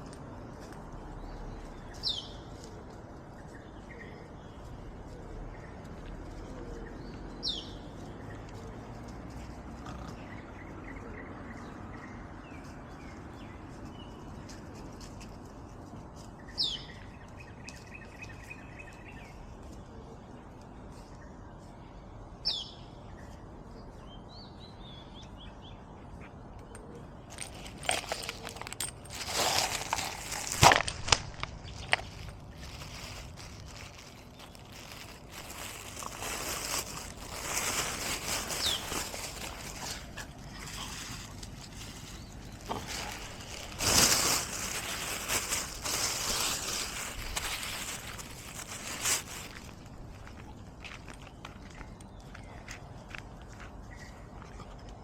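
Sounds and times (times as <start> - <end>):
loud rustling and scuffling: 27.3 - 50.4.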